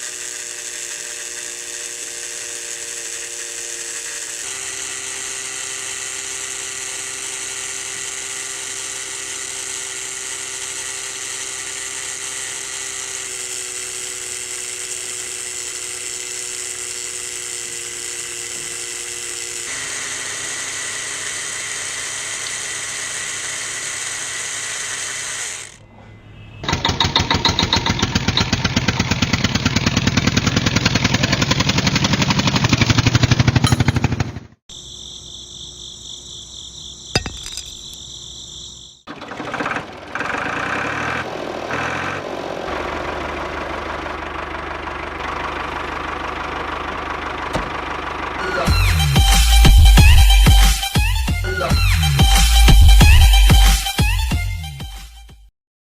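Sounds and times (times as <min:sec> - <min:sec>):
fast rattling buzz: 0:00.0 - 0:25.8, 0:26.6 - 0:34.4
small electric motor whining: 0:00.0 - 0:25.9.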